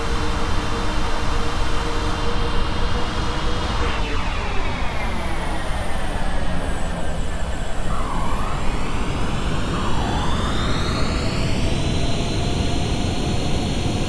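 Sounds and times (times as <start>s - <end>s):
whining tones gliding down: 3.6s - 13.0s.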